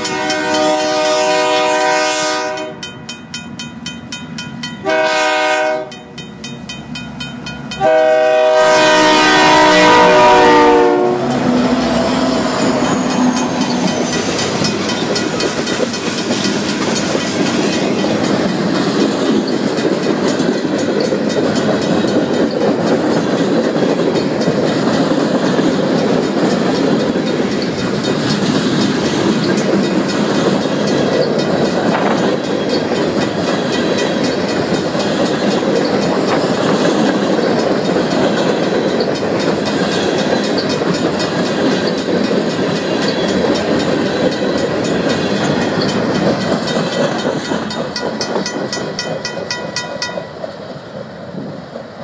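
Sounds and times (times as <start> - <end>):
crossing bell ringing: 0.0 - 1.1, 2.5 - 8.7, 9.3 - 18.6, 37.3 - 50.6
freight train wheels over rail joints: 0.0 - 52.0.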